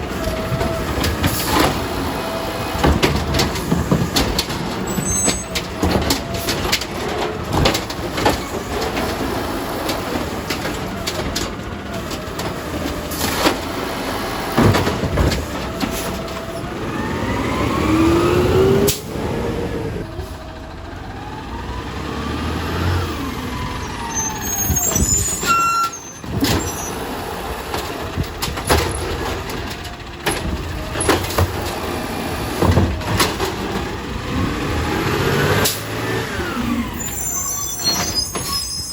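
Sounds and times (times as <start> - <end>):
diesel engine revving: 0.0 - 38.9
clanks and knocks: 0.2 - 16.7, 27.6 - 34.1
rising whines: 16.9 - 20.0.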